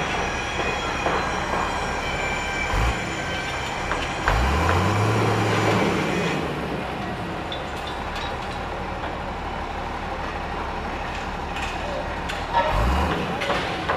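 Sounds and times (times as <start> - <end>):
high metallic squeals: 0.0 - 6.7
construction machinery din: 0.0 - 13.9
engine revving up: 4.3 - 6.8, 12.7 - 13.4.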